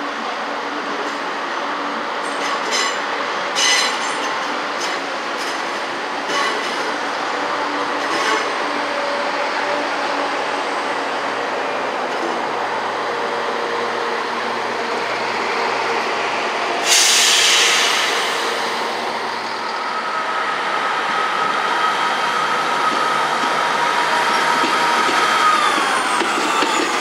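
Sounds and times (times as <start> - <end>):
train moving: 0.0 - 27.0
sudden loud hiss: 16.8 - 19.9.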